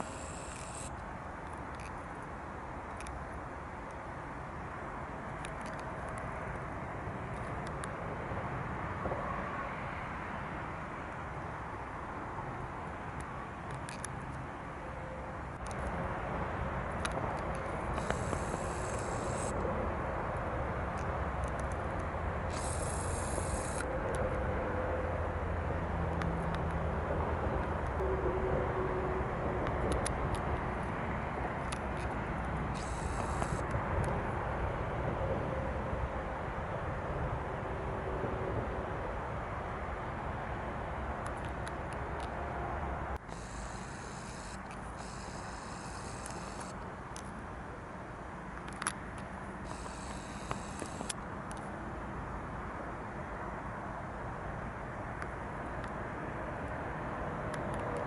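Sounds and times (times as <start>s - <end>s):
high whine: 0.0s - 1.0s, 17.8s - 19.8s, 22.5s - 25.2s, 32.8s - 33.7s, 43.2s - 46.8s, 49.6s - 51.2s
clicks: 32.8s - 33.8s, 48.6s - 51.7s.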